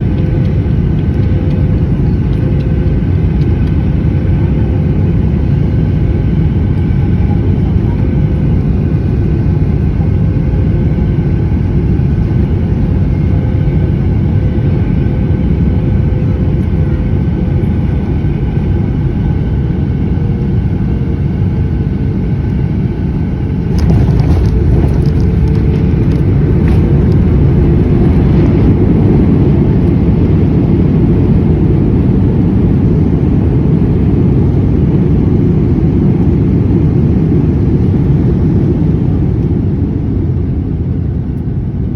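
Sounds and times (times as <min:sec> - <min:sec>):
jet engines and airflow rumbling: 0:00.0 - 0:41.9
runway rumble: 0:22.5 - 0:32.0.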